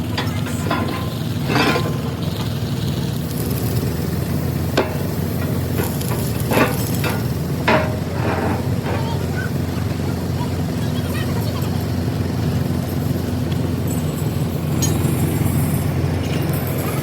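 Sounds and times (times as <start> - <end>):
metalwork hissing and scraping: 0.0 - 10.3
heavy engine droning: 0.0 - 17.0.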